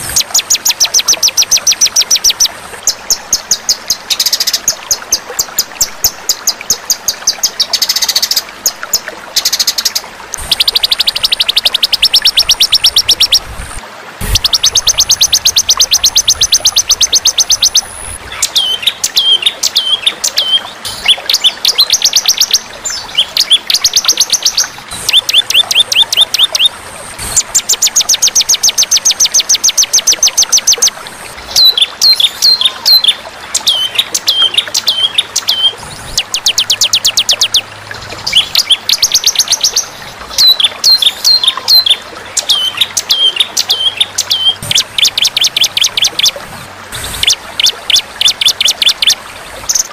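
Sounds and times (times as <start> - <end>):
songbird fast trills: 14.2 - 26.7
songbird chip notes: 14.2 - 30.9.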